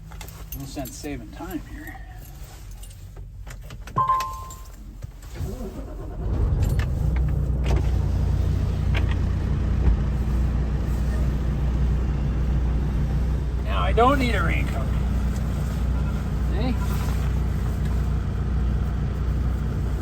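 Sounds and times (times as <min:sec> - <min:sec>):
two-note electronic beep: 0:04.0 - 0:04.7
truck diesel engine running: 0:05.7 - 0:20.0.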